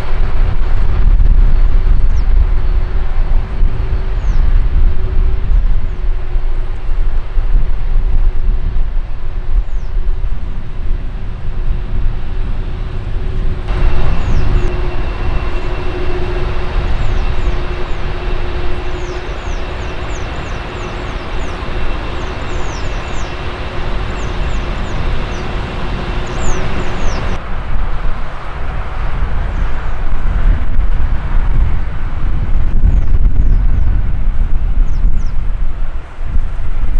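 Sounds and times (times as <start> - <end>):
jet airliner engines rumbling: 0.0 - 36.9
thin high whine: 11.8 - 27.4
bright hiss: 13.7 - 27.4.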